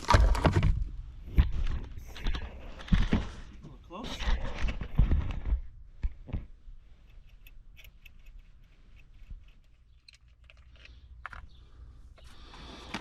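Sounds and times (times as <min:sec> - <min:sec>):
small parts clicking: 0:07.0 - 0:11.5.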